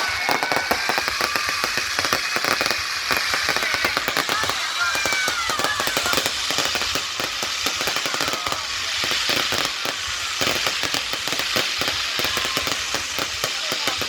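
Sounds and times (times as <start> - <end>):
fireworks popping and crackling: 0.0 - 14.0.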